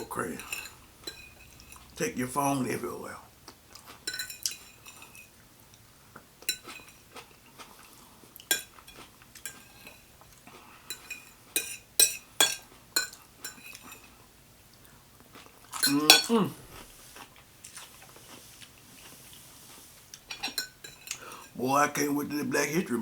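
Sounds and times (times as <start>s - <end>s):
metal cutlery clinking on dish: 0.2s - 2.0s, 4.0s - 5.3s, 6.4s - 7.0s, 8.4s - 10.0s, 10.9s - 14.1s, 15.7s - 16.5s, 20.2s - 21.5s.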